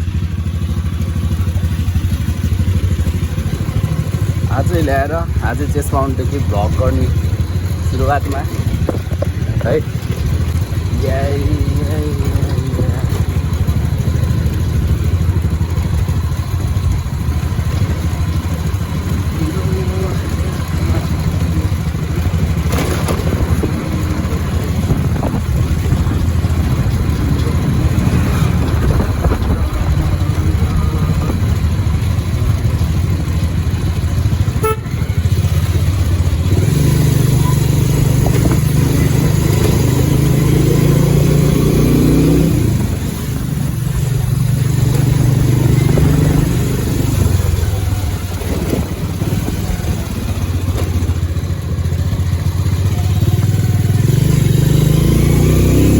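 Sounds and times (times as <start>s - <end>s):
motorcycle engine accelerating: 0.0s - 55.9s.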